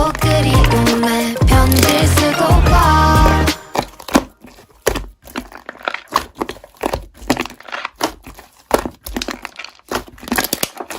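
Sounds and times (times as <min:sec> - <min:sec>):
slime crackling and popping: 0:01.5 - 0:02.3, 0:03.2 - 0:10.9.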